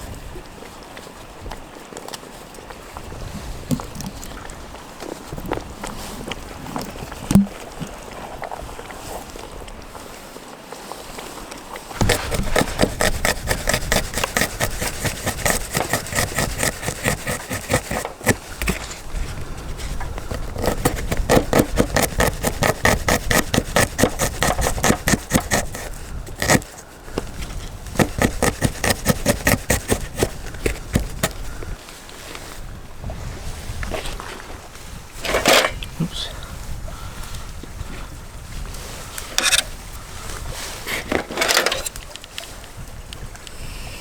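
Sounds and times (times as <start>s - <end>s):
tool scraping wood: 12.0s - 31.4s, 39.3s - 39.7s, 40.8s - 42.0s.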